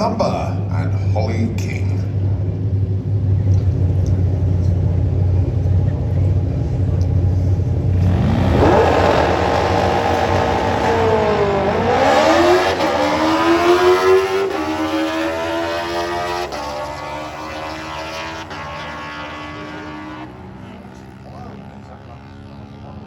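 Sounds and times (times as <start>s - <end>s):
motorbike engine revving: 7.8s - 20.5s.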